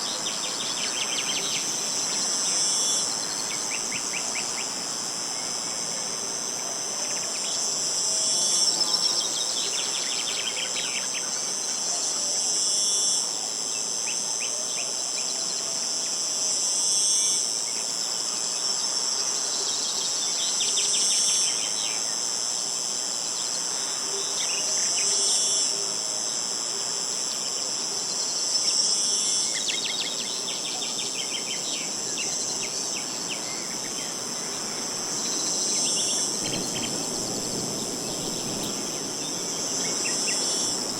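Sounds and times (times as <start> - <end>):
high-pitched insect chorus: 0.0 - 40.9.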